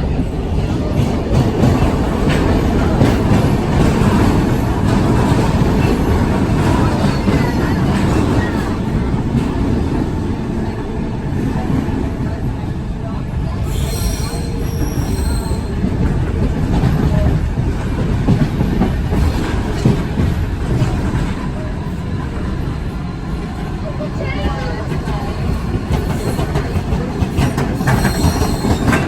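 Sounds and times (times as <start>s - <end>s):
train wheels rumbling on rails: 0.0s - 29.0s
high squeal: 13.6s - 15.8s.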